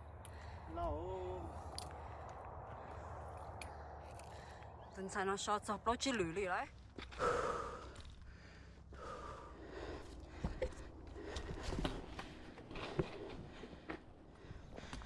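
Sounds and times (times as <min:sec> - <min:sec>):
person breathing hard: 0:07.1 - 0:12.0
footsteps on a trail: 0:10.0 - 0:15.0.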